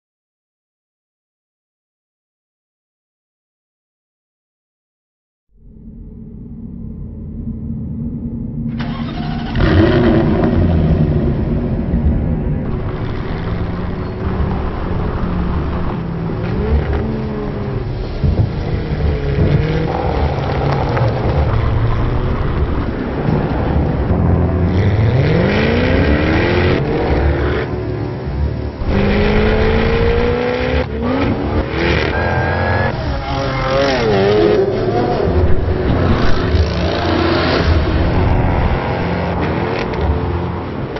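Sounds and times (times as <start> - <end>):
car engine revving and accelerating: 8.7 - 40.9.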